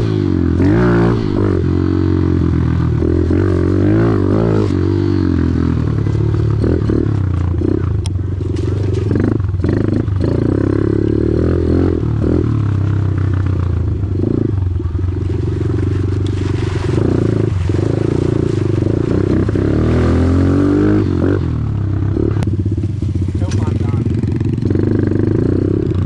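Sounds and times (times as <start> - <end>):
off-road engine revving: 0.0 - 26.0.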